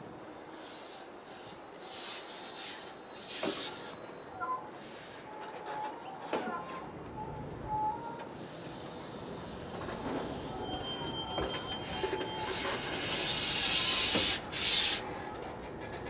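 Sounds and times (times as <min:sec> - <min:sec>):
faint thin squeal: 0:01.4 - 0:08.2, 0:09.7 - 0:15.2
air brake hissing: 0:08.3 - 0:15.1.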